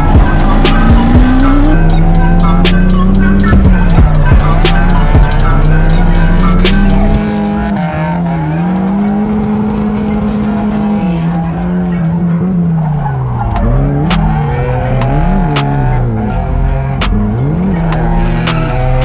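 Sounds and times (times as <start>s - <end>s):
car engine at high revs: 0.0s - 19.0s
tyres squealing: 0.0s - 19.0s.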